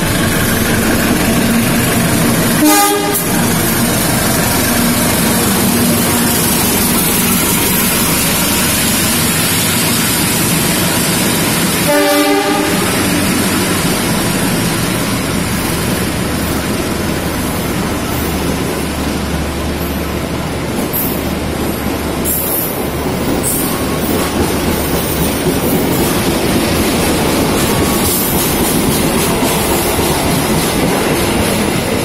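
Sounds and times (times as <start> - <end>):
train rumbling past: 0.0 - 32.0
train horn: 2.6 - 3.4, 11.8 - 13.3.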